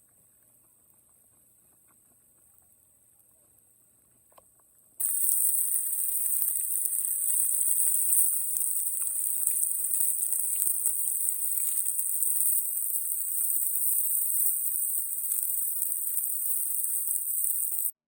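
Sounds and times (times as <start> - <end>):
steak sizzling in a pan: 5.0 - 18.0.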